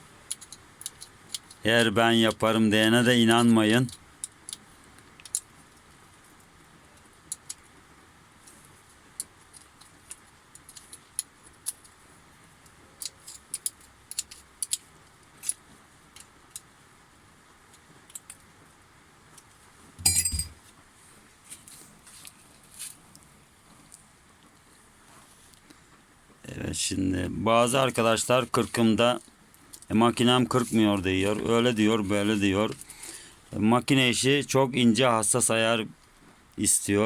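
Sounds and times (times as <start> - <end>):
metal tools clicking and clinking: 0.3 - 1.6, 13.0 - 14.8, 20.0 - 20.6
metallic clank: 20.0 - 20.6.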